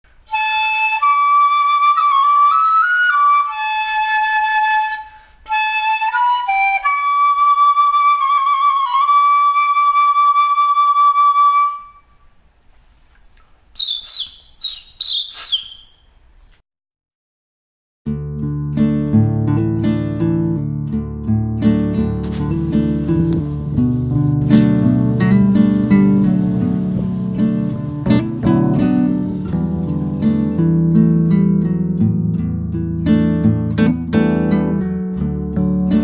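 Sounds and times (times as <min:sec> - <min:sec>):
flute melody: 0:00.2 - 0:12.2, 0:22.2 - 0:30.7
short high falling chirps: 0:13.8 - 0:16.2.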